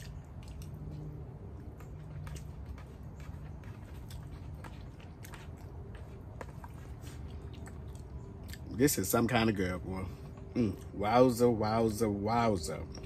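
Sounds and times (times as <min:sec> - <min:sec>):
person chewing: 0:00.0 - 0:08.8, 0:10.2 - 0:11.1
faint low hum: 0:00.0 - 0:13.0.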